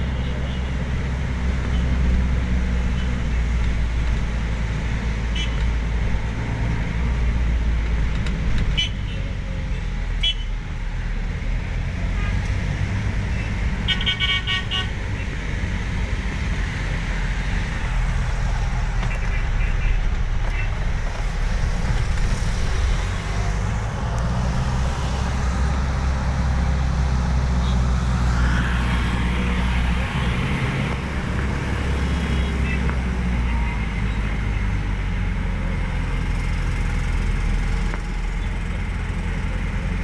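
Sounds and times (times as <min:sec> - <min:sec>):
moving vehicle rumble: 0:00.0 - 0:40.0
car horn honking: 0:10.2 - 0:10.5, 0:13.8 - 0:15.3.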